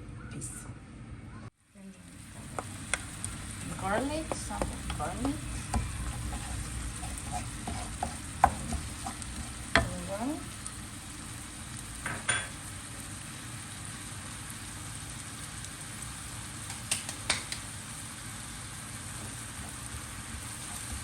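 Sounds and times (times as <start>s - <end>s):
onions sizzling in a pot: 1.6s - 21.0s
utensil clicking against pot: 2.5s - 10.0s, 16.7s - 17.7s.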